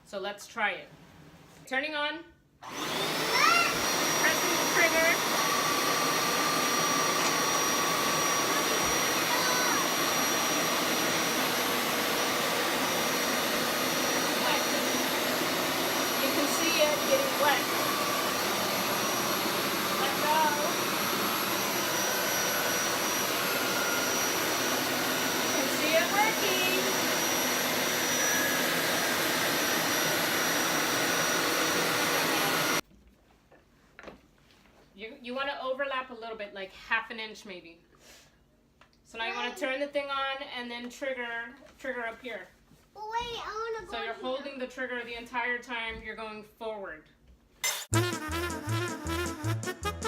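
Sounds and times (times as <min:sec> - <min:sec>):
carpet shampooer motor whining: 0:02.6 - 0:32.8.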